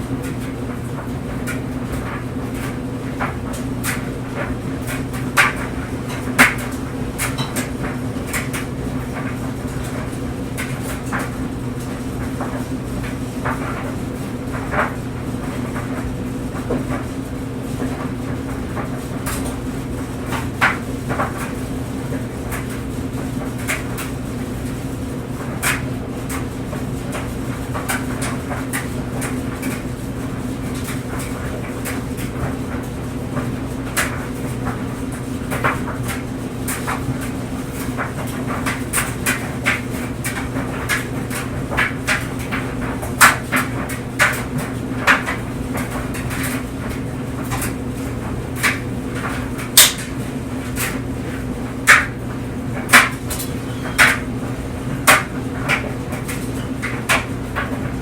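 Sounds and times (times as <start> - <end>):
clothes dryer running: 0.0 - 58.0.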